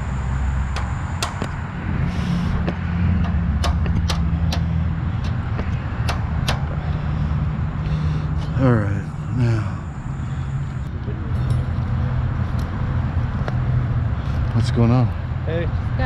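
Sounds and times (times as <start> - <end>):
hammer blows: 0.0 - 7.2
engine humming: 0.0 - 16.0.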